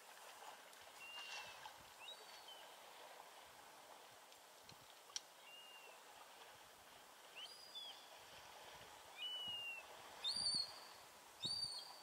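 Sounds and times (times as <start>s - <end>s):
faint steady hiss: 0.0s - 12.0s
bird whistling calls: 9.2s - 12.0s.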